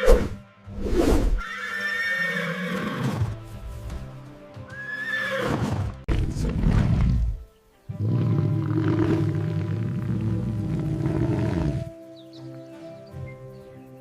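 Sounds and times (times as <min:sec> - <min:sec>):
background music: 0:00.0 - 0:14.0
horse neighing: 0:01.4 - 0:03.3, 0:04.8 - 0:07.3, 0:08.0 - 0:11.9.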